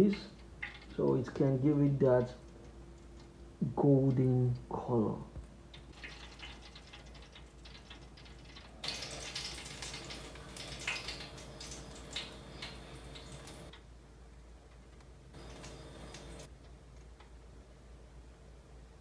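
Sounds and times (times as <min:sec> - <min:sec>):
roast juices crackling and sizzling: 0:05.7 - 0:13.7, 0:15.4 - 0:16.5
faint steady hum: 0:08.0 - 0:19.0.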